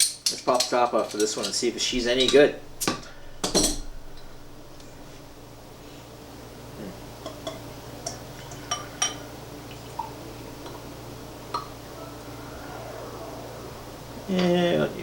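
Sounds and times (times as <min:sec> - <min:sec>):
glass clinking: 0:00.0 - 0:05.5, 0:07.2 - 0:09.3.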